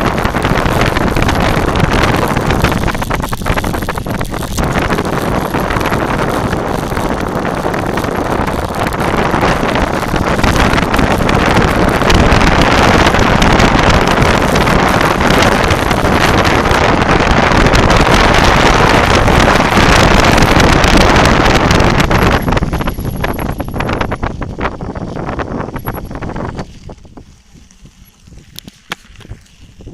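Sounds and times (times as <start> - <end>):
wind buffeting microphone: 0.0 - 29.9.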